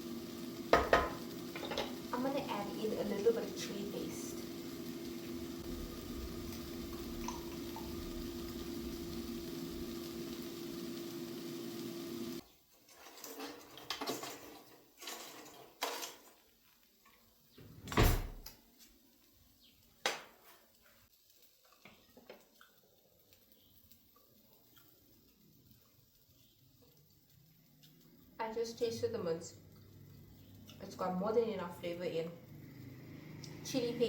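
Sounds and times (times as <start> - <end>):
hum and hiss of cooking: 0.0 - 34.0
kitchen utensils and dishes clattering: 0.7 - 2.0, 12.8 - 16.5.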